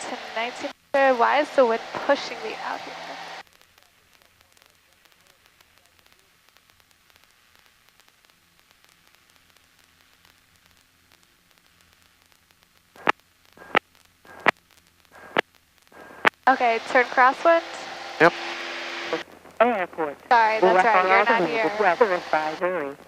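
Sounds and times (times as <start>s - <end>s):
radio intercom hiss: 0.0s - 6.5s, 12.9s - 23.0s
sharp static pops: 0.0s - 23.0s.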